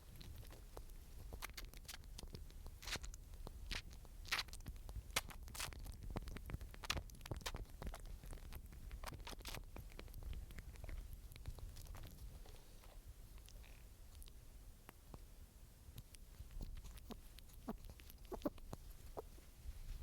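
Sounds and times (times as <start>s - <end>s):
small animal scrabbling clicks: 16.0s - 19.3s.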